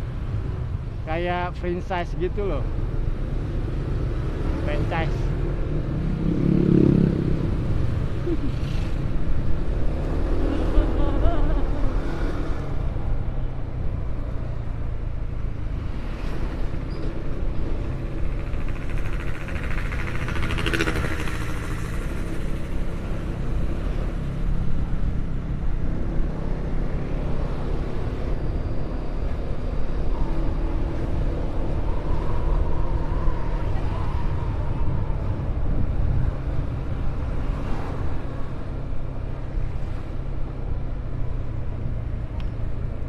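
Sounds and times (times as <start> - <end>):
road and wind noise: 0.0 - 43.0
vehicle rumble: 0.0 - 43.0
vehicle passing: 3.7 - 13.2.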